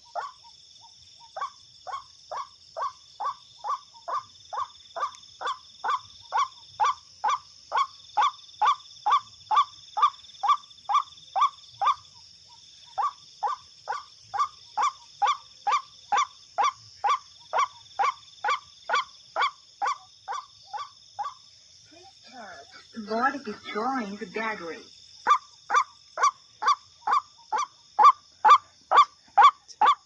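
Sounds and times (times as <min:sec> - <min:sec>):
waterhen calling harsh notes: 0:23.0 - 0:30.0.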